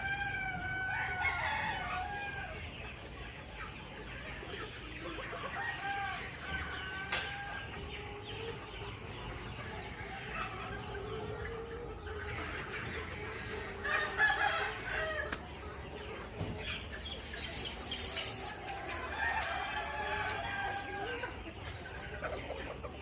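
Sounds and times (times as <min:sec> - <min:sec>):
chickens clucking: 0:00.0 - 0:23.0
rooster crowing: 0:17.2 - 0:21.4.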